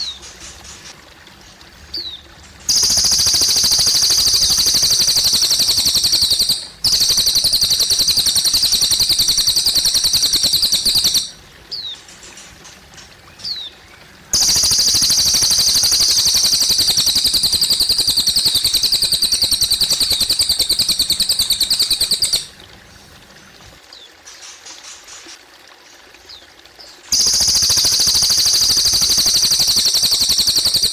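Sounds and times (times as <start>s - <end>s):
trickling water: 0.0s - 30.9s
bird singing fast high trills: 2.0s - 11.9s, 14.3s - 22.6s, 27.1s - 30.9s
short down-slurred bird chirps: 14.4s - 22.5s.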